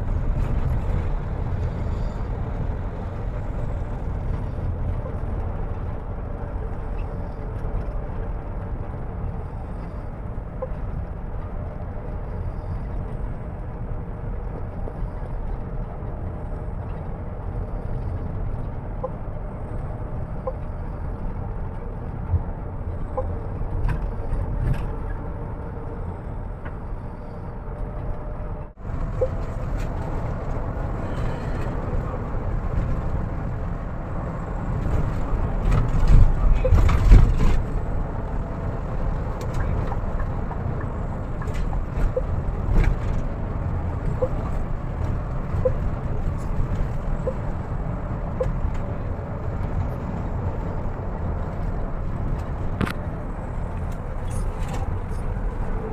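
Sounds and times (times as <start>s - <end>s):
bus engine and road rumble: 0.0s - 55.9s.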